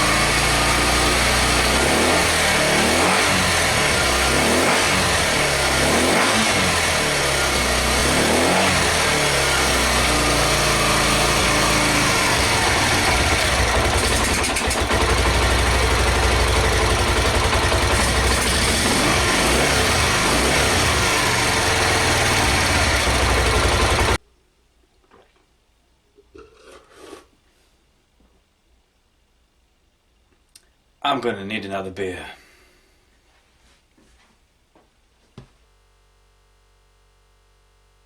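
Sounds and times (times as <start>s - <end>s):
motorcycle engine revving: 0.0s - 24.2s.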